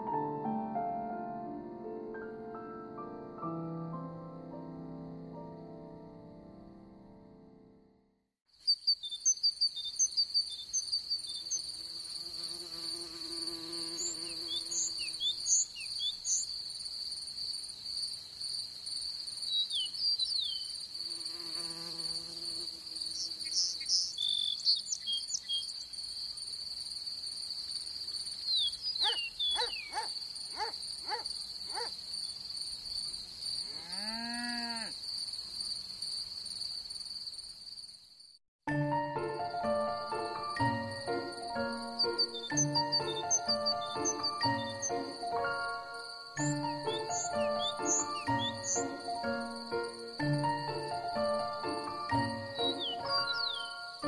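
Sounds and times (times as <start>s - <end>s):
crickets chirring: 8.5s - 38.4s, 40.1s - 54.0s
high bird chirps: 8.6s - 11.6s, 13.9s - 16.6s, 19.5s - 20.8s, 23.1s - 25.9s, 28.4s - 31.9s, 41.9s - 45.1s, 46.4s - 49.1s, 52.6s - 54.0s
low animal calls: 29.0s - 31.9s.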